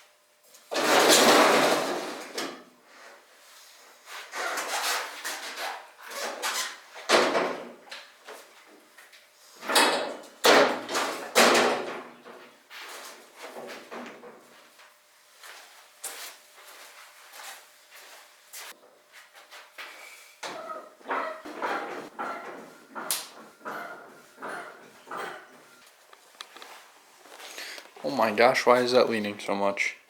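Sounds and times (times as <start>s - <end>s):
scraping and knocking noises: 18.7s - 28.0s.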